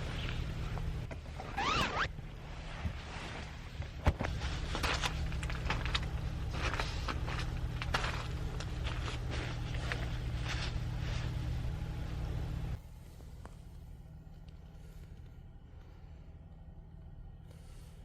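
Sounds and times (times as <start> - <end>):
rustling and handling noises: 0.0 - 12.2
low hum: 0.0 - 18.0.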